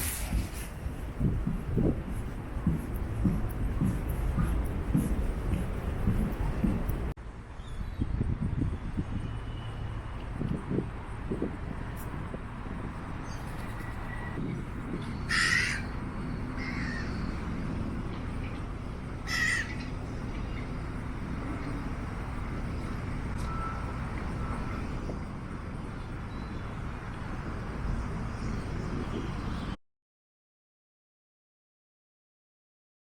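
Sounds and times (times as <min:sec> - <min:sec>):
low rumble of city noise: 0:00.0 - 0:29.8
crow cawing: 0:15.3 - 0:16.0, 0:16.6 - 0:17.3, 0:19.2 - 0:19.9.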